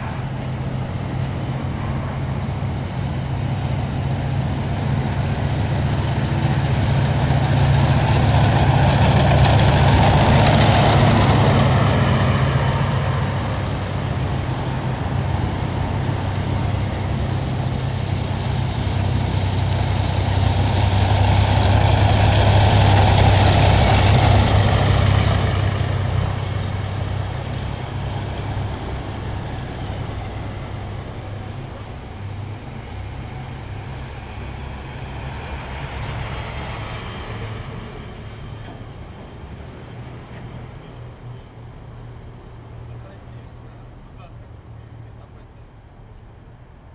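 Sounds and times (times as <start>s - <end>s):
heavy vehicles driving past: 0.0s - 46.8s.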